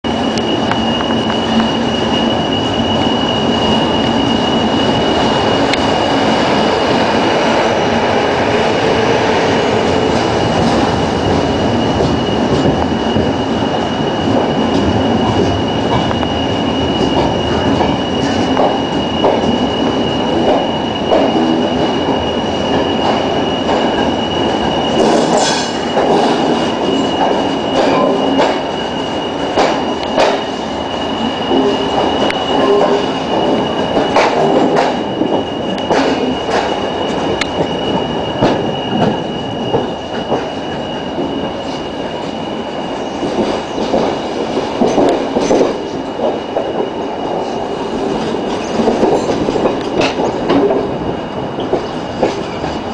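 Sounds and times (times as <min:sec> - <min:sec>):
train wheels rumbling on rails: 0:00.0 - 0:52.9
wheel squeal: 0:00.1 - 0:06.1.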